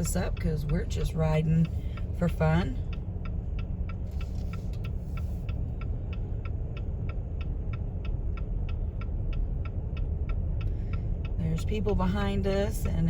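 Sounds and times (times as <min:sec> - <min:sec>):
car driving slowly on snow: 0:00.0 - 0:13.0.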